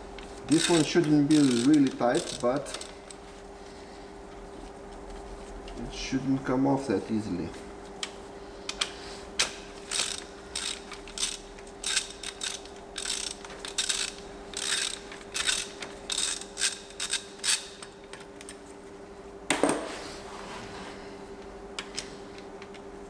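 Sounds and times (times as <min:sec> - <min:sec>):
ratchet wrench clicking: 0:00.5 - 0:03.2, 0:09.9 - 0:17.9.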